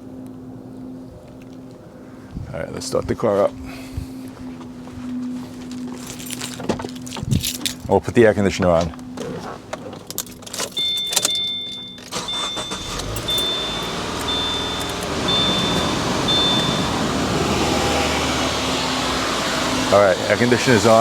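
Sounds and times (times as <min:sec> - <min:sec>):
car engine starting and idling: 0:09.1 - 0:21.0
dashboard warning chime beeping: 0:10.5 - 0:20.0.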